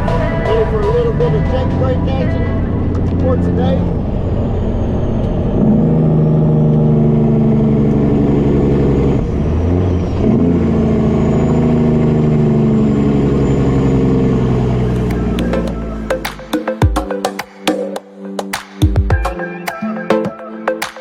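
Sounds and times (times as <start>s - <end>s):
truck diesel engine running: 0.0s - 16.5s.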